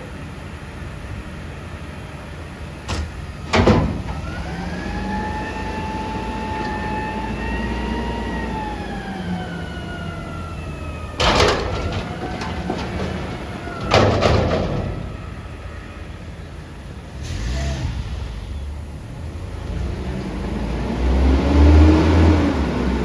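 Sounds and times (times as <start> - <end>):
garbage truck engine whining: 0.0 - 23.0.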